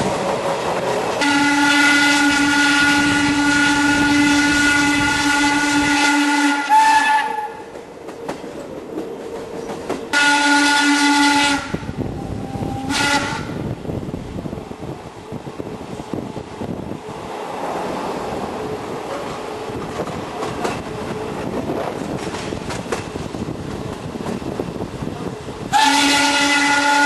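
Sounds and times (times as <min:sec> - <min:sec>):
steam locomotive whistle: 0:01.2 - 0:07.7, 0:10.1 - 0:13.6, 0:25.7 - 0:27.0.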